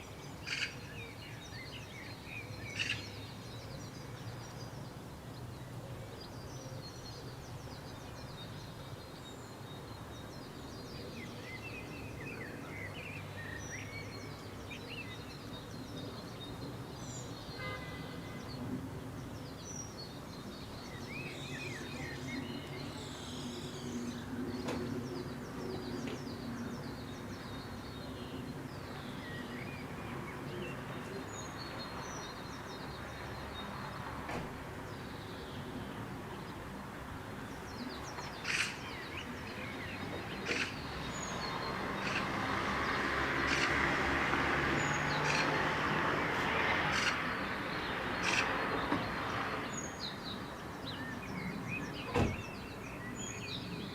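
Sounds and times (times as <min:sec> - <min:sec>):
small birds chirping: 0:34.9 - 0:53.9.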